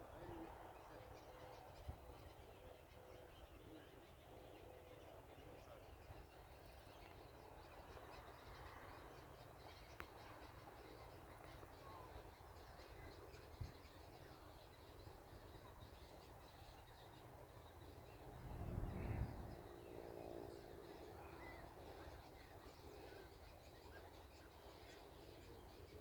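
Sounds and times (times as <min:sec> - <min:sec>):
faint birds chirping: 0:00.0 - 0:26.0
low rumble: 0:18.1 - 0:20.0.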